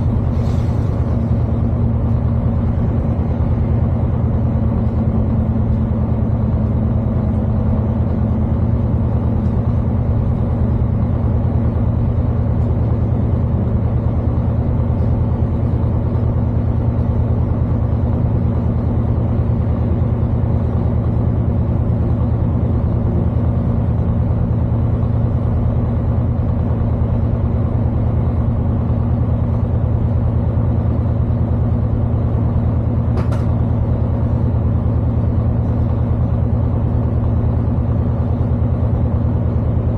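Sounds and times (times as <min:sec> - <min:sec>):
diesel train engines humming: 0:00.0 - 0:39.9.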